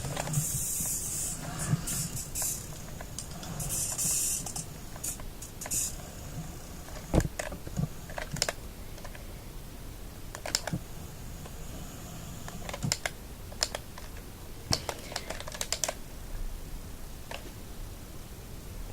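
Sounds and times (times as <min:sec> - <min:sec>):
plastic toy clicks: 0:08.1 - 0:09.2, 0:10.3 - 0:10.8, 0:14.7 - 0:16.0.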